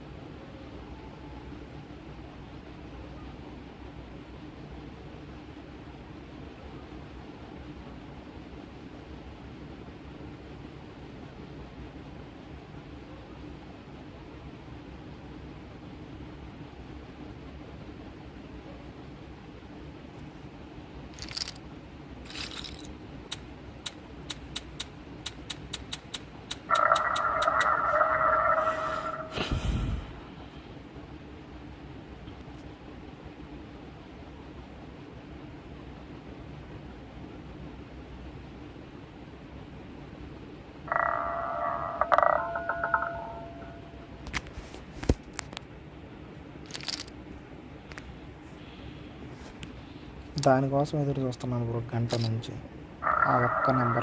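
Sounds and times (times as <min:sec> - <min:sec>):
low hum: 0:19.6 - 0:50.3
sharp regular clicks: 0:21.2 - 0:21.6, 0:22.2 - 0:27.8, 0:46.6 - 0:47.2.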